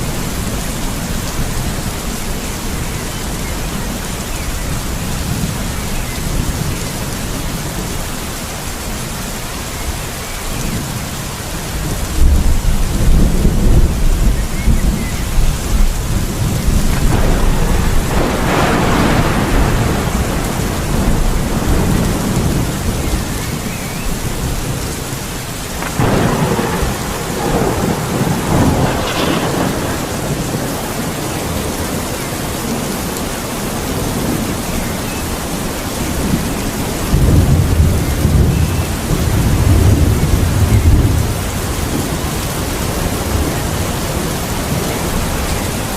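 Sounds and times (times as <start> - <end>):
steady heavy rain: 0.0 - 45.9
thunder rumbling and crackling: 10.6 - 45.9.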